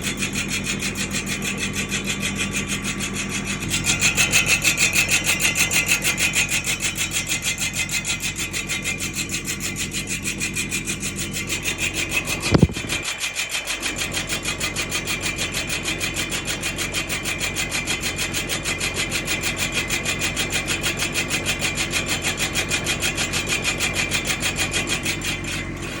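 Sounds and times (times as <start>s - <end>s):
brake drum grinding: 0.0s - 26.0s
sharp knock: 12.5s - 13.0s.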